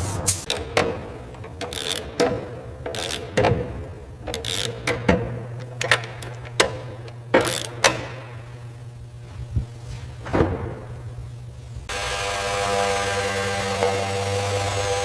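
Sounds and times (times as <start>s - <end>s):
steady low hum: 0.0s - 15.0s
tools knocking and clicking: 0.5s - 8.2s.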